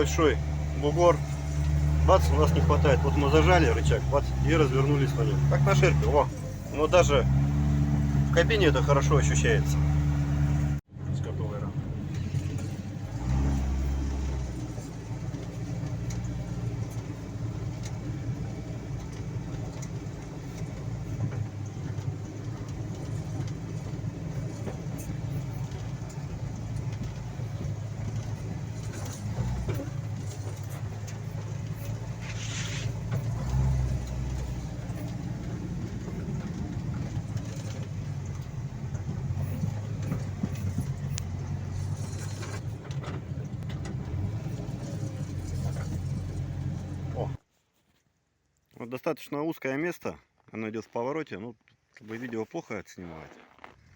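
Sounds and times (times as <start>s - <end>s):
vehicle engine running: 0.0s - 47.4s
knocks and rattles: 12.0s - 47.4s
short hiss: 32.2s - 33.0s.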